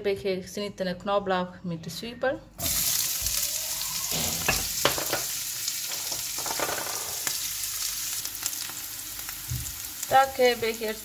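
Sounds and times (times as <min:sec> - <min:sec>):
onion and garlic sizzling in oil: 0:02.6 - 0:11.0.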